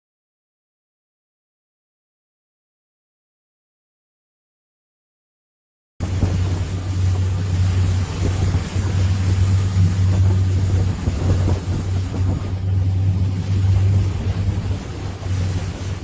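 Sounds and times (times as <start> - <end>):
motorboat engine humming: 6.0 - 16.0
wind buffeting microphone: 6.0 - 16.0.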